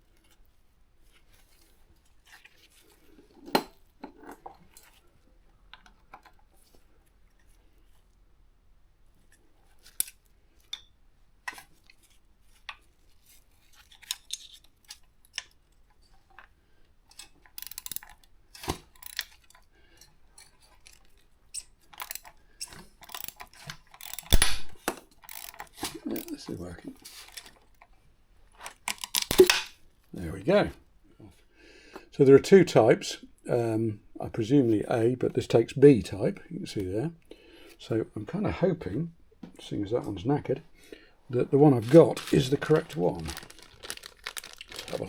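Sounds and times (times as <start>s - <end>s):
metallic clicks of engine parts and tools: 17.1s - 25.9s.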